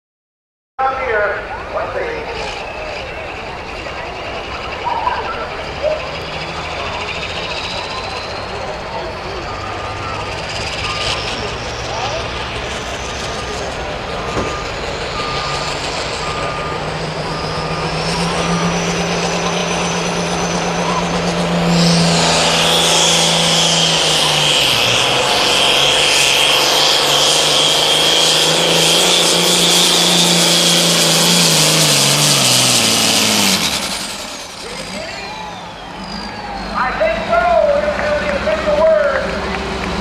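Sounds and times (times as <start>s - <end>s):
diesel tractor engine roaring: 0.8s - 40.0s
turbo whistle: 4.8s - 6.2s, 34.7s - 37.2s
short beeps: 4.8s - 6.4s.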